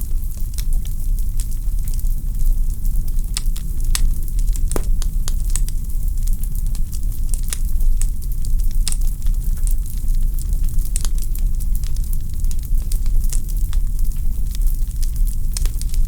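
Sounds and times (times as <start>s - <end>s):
logs crackling and popping: 4.6s - 5.9s.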